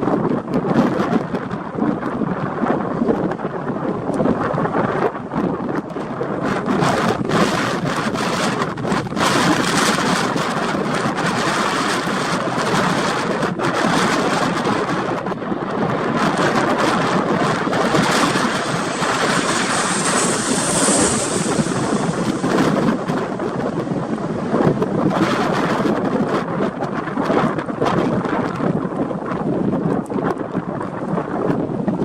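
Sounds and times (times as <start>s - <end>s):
wind buffeting microphone: 0.0s - 32.0s
jet airliner engine: 5.7s - 29.3s
high engine whine: 16.3s - 27.0s.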